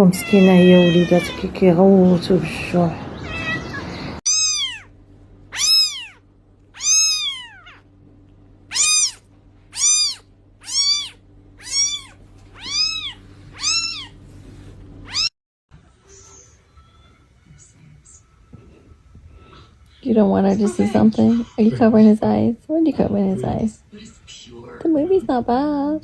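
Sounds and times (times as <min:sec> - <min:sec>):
kitten mewing: 0:03.2 - 0:04.9, 0:05.5 - 0:07.9, 0:08.7 - 0:14.2, 0:15.0 - 0:15.3.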